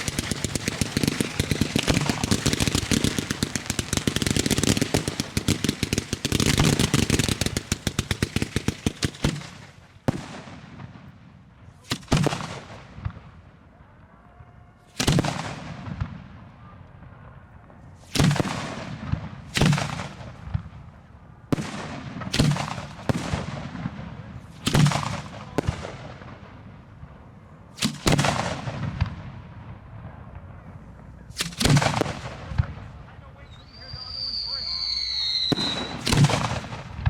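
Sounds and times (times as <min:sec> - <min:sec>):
fireworks booming with echo: 0:00.0 - 0:37.0.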